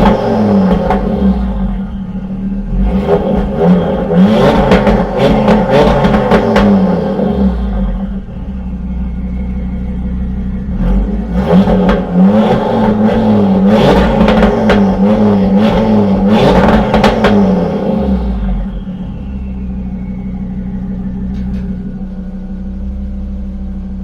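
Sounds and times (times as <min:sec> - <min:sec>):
car engine revving: 0:00.0 - 0:24.0
exhaust cracks: 0:00.0 - 0:24.0.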